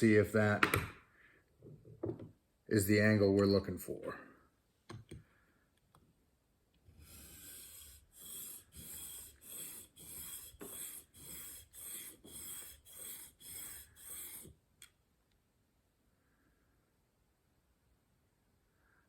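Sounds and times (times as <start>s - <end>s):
blade rasping on diamond plate: 7.0s - 14.6s
click: 14.8s - 15.4s.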